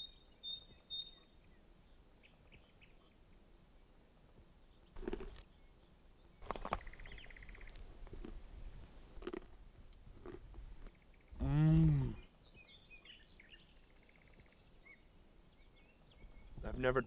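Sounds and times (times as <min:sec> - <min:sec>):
bird trill: 0:00.0 - 0:01.7
bird chirps: 0:00.0 - 0:03.6, 0:04.7 - 0:07.8, 0:12.1 - 0:17.0.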